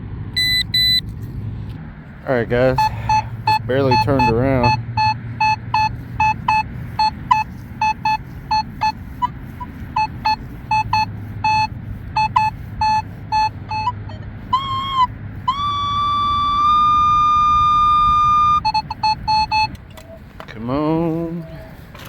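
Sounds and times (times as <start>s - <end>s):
metal detector short low beeps: 0.4s - 1.1s, 2.6s - 20.2s
metal detector steady high tone: 0.4s - 1.1s, 2.6s - 20.1s
wind rumble on microphone: 15.1s - 20.5s.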